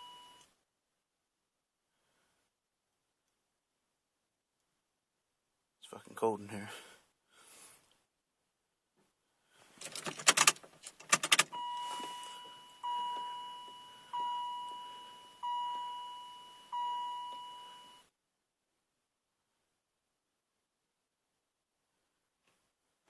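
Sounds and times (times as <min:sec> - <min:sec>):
keys jangling: 0:09.8 - 0:11.5.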